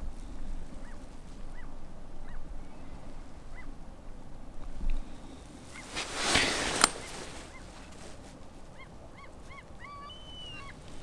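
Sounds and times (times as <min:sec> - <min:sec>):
rustling: 0:04.7 - 0:08.8
short bird calls: 0:08.7 - 0:11.0.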